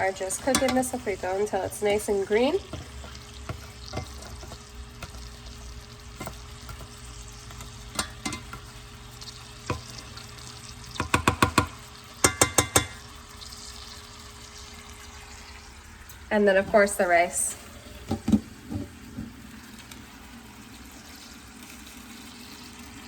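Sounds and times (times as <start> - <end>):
food sizzling in a pot: 0.0 - 23.0
utensil knocking on pot: 0.3 - 5.3, 7.5 - 8.7, 9.6 - 10.0, 10.9 - 13.0.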